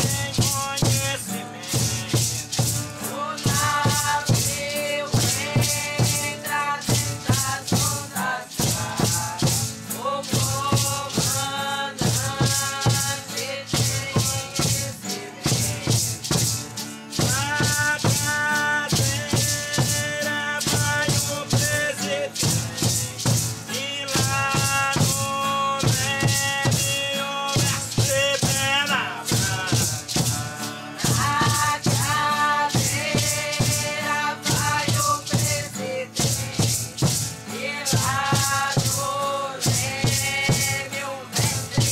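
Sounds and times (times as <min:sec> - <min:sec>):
hand-shaken rattles: 0:00.0 - 0:41.9
voices chanting: 0:28.9 - 0:36.8.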